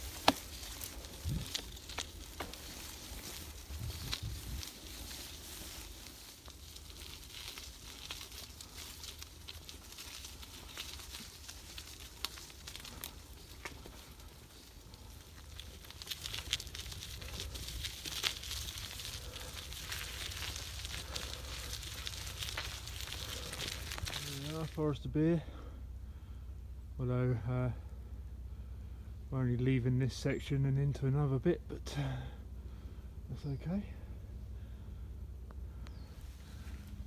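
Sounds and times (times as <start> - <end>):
wind rumble on microphone: 0.0 - 2.3, 2.9 - 5.4
bike tyres crunching on gravel: 0.0 - 25.6, 35.9 - 37.0
grit and twigs crackling: 0.0 - 37.0.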